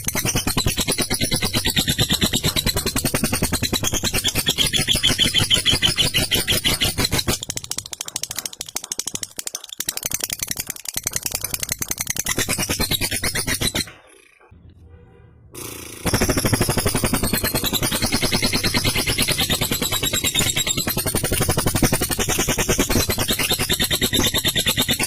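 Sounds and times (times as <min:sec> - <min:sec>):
lovebird shrill chatter: 0:00.0 - 0:13.9.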